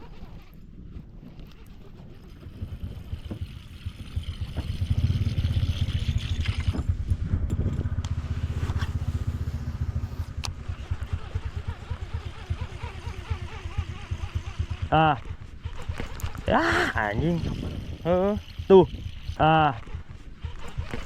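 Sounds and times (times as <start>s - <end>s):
boat motor running: 0.0s - 21.0s
sharp clicks: 15.7s - 16.5s.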